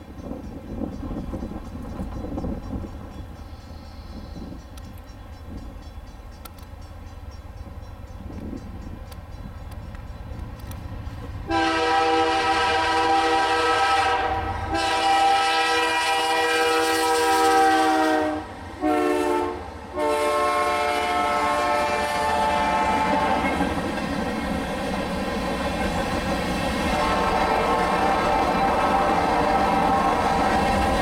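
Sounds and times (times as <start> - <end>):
low rumble of train: 0.0 - 31.0
locomotive air horn blasts: 11.5 - 23.6, 26.9 - 30.8.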